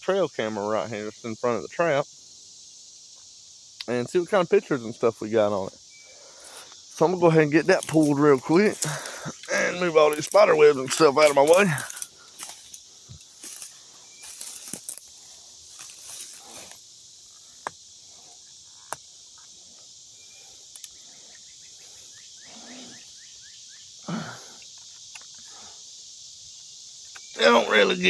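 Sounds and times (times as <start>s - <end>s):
insects chorus: 0.0s - 28.0s
rustling: 5.5s - 22.9s.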